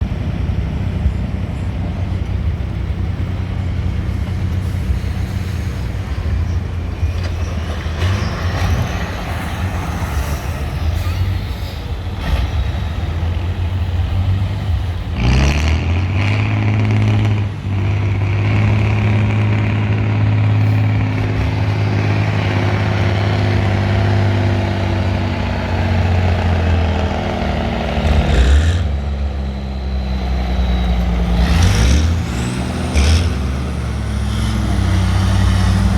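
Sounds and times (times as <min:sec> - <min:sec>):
truck engine revving hard: 0:01.6 - 0:35.9.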